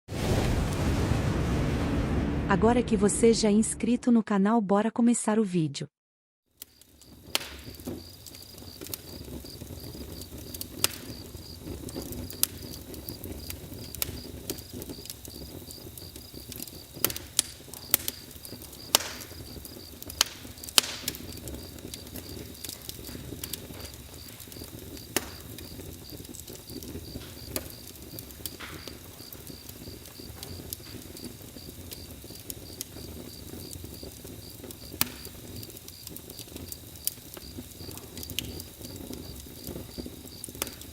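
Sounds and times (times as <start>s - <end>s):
low rumble: 0.1s - 4.1s
campfire crackling and popping: 6.5s - 40.9s
cricket chirping: 6.7s - 40.9s.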